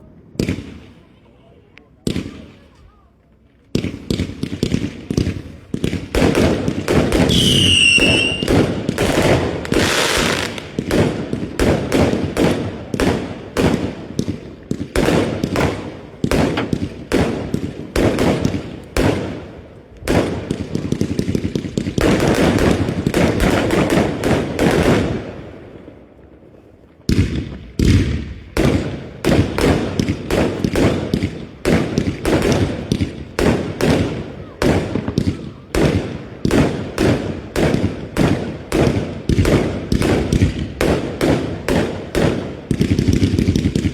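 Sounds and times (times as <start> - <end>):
fireworks bangs and crackling: 0.0 - 43.9
falling firework whistle: 7.3 - 8.6.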